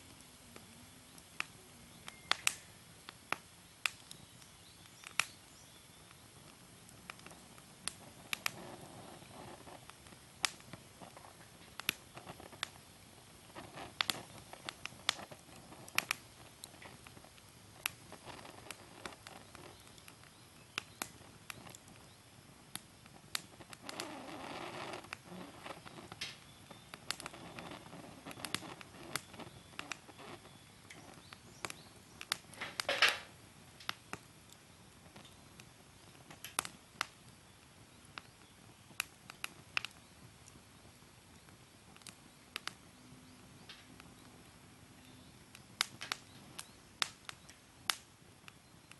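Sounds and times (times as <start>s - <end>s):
fire crackling in fire pit: 0.0s - 48.9s
fire hissing: 0.0s - 48.9s.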